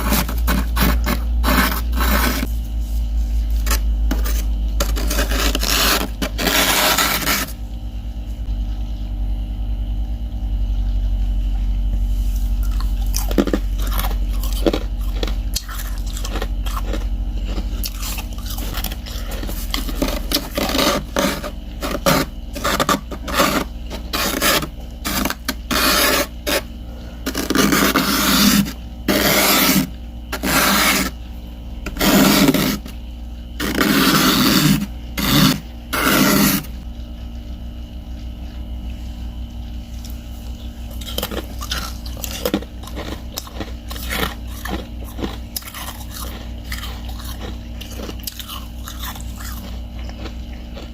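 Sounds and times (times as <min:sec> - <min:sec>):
ice chips scraping and crunching: 0:00.0 - 0:02.5, 0:03.5 - 0:07.6, 0:12.6 - 0:26.6, 0:27.3 - 0:31.1, 0:32.0 - 0:32.9, 0:41.0 - 0:50.3.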